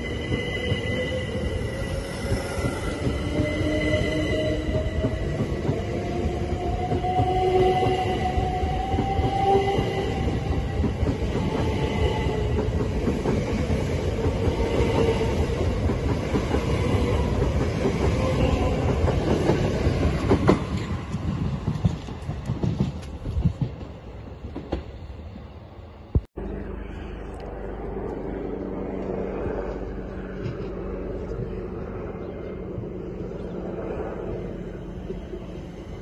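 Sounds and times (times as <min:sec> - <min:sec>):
whining tone: 0:00.0 - 0:19.1
train wheels rumbling on rail: 0:00.0 - 0:26.3, 0:29.0 - 0:36.0.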